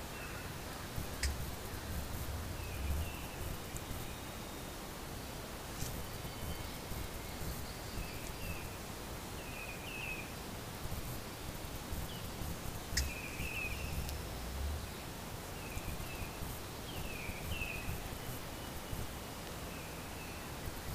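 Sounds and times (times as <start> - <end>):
outdoor background hiss: 0.0 - 20.9
small bird chirping: 1.0 - 4.6, 11.9 - 19.0.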